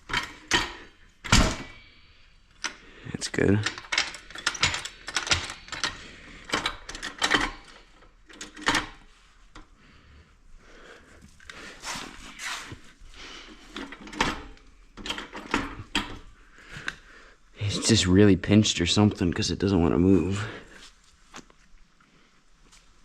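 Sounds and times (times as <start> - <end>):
tools clanking and scraping: 0.0 - 1.9, 3.6 - 9.1, 13.5 - 16.3.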